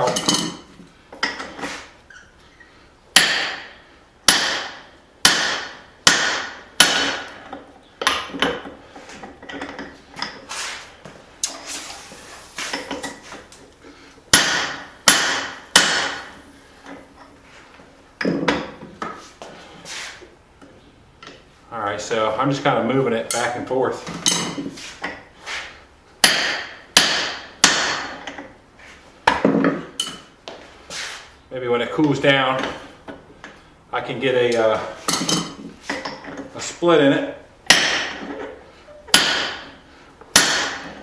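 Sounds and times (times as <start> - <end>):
hammer striking metal punch: 3.2 - 3.7, 4.3 - 7.3, 14.3 - 16.3, 26.2 - 28.2, 37.7 - 38.3, 39.1 - 39.7, 40.3 - 41.0.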